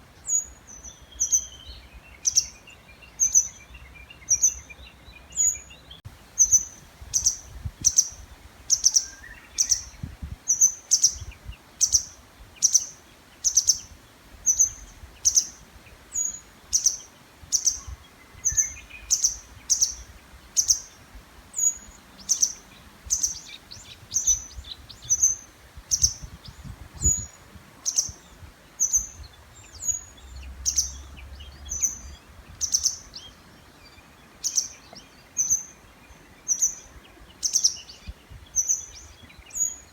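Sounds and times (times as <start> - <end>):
faint birdsong: 0.0 - 39.9
songbird high sharp call: 6.4 - 21.0.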